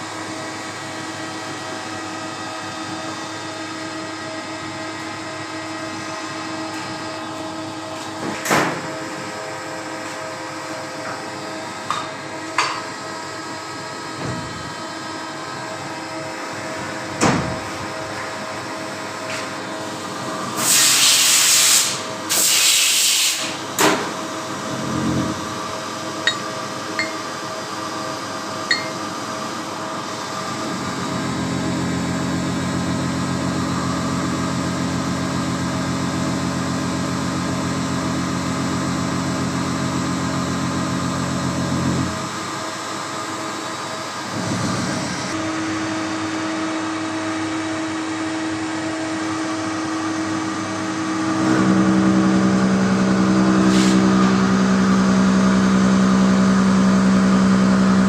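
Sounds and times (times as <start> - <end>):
loud hissing bursts: 20.6 - 23.6
machine hum: 24.4 - 32.2
motor low hum: 24.6 - 27.7.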